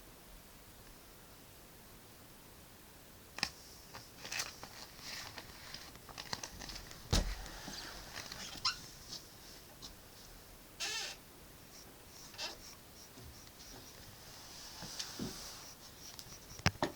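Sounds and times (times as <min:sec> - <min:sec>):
thump: 0:07.0 - 0:08.0
pencil scratching on paper: 0:11.7 - 0:16.8.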